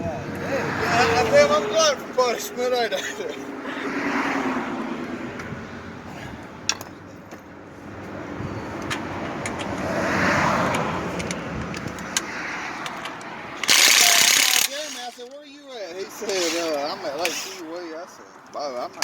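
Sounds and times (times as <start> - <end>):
car driving past: 3.6 - 5.3, 8.5 - 11.6
sharp clicks: 10.7 - 15.0.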